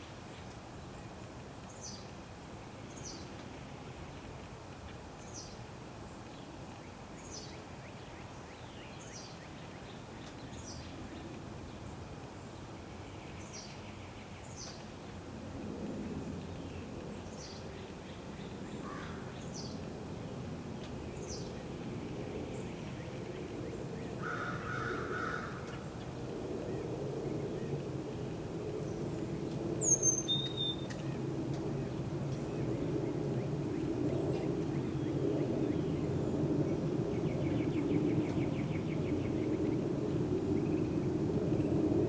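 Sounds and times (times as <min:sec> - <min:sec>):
harsh crow caw: 0:24.2 - 0:25.8.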